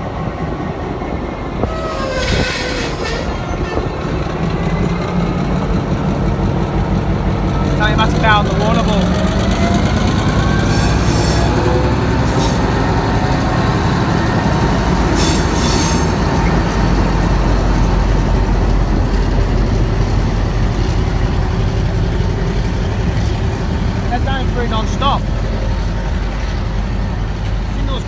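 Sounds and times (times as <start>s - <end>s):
train wheels rumbling: 0.0s - 28.0s
high wheel squeals: 1.6s - 4.0s, 10.6s - 12.7s, 15.2s - 16.2s.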